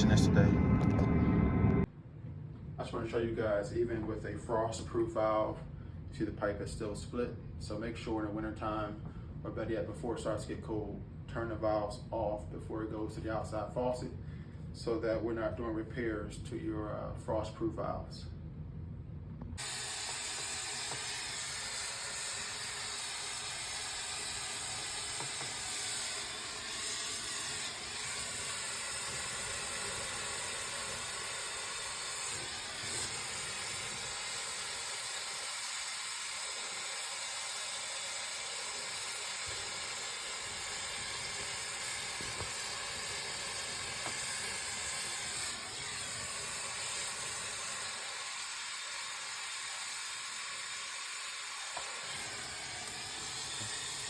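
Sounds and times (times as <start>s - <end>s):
steady hiss: 19.6s - 54.0s.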